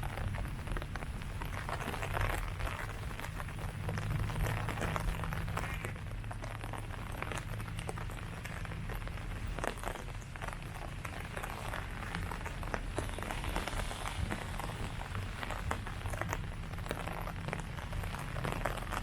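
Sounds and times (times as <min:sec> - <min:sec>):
constant low rumble: 0:00.0 - 0:19.0
rain pattering on leaves: 0:00.0 - 0:19.0.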